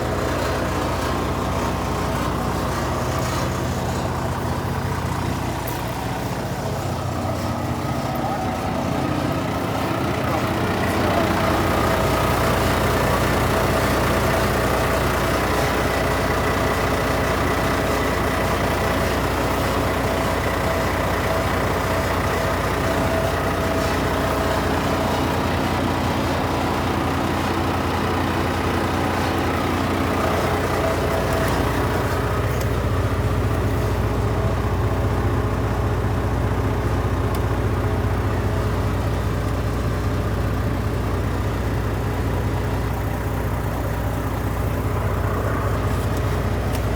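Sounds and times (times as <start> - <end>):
diesel truck engine idling: 0.0 - 46.9.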